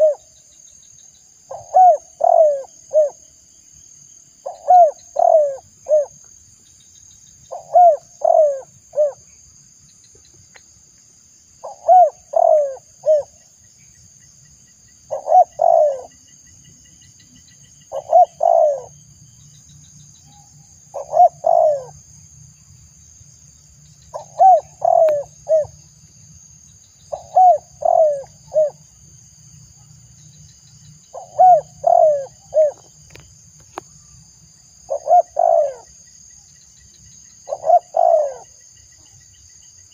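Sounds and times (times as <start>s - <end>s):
dove cooing: 0.0s - 0.3s, 1.5s - 3.2s, 4.4s - 6.2s, 7.5s - 9.2s, 11.6s - 13.3s, 15.1s - 16.2s, 17.9s - 19.0s, 20.9s - 22.0s, 24.1s - 25.8s, 27.1s - 28.8s, 31.1s - 32.9s, 34.9s - 35.9s, 37.5s - 38.6s.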